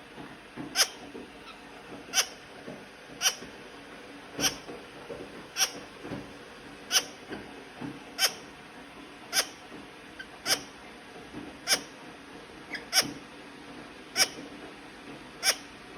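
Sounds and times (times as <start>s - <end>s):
parrot chirping: 0.8s - 2.4s, 5.6s - 5.8s, 6.9s - 7.2s, 8.2s - 8.4s, 9.3s - 9.6s, 10.2s - 10.7s, 11.7s - 11.9s, 14.2s - 14.4s, 15.4s - 15.6s.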